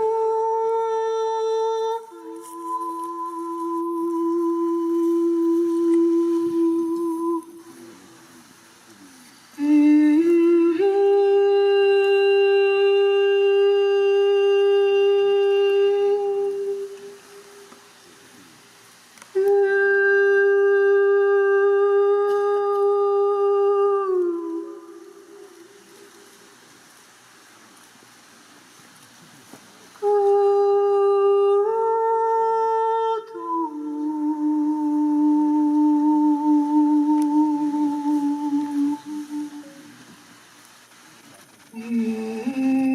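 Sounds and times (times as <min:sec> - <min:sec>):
person humming: 0:00.0 - 0:17.7, 0:19.3 - 0:26.2, 0:30.0 - 0:40.2, 0:41.7 - 0:42.9.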